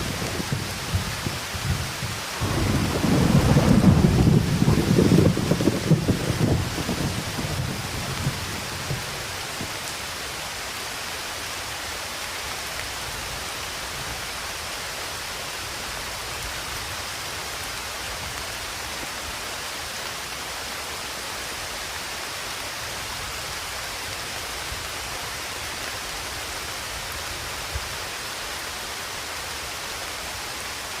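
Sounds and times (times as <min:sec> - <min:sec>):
steady rain falling: 0:00.0 - 0:31.0
thunder rumble: 0:02.4 - 0:09.1.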